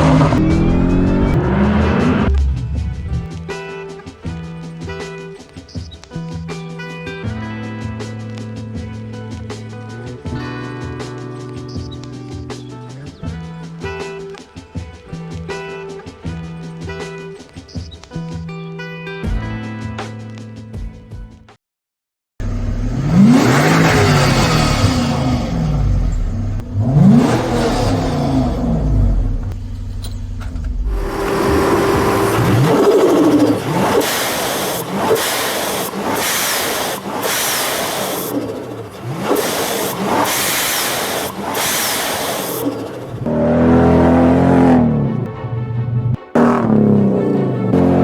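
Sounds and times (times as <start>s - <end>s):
engine revving hard: 0.0s - 3.3s, 22.4s - 29.6s, 30.8s - 45.3s, 46.0s - 48.0s.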